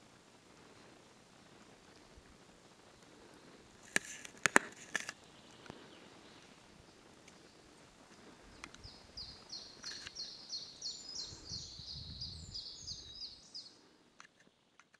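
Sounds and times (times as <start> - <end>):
songbird singing: 5.1 - 14.9.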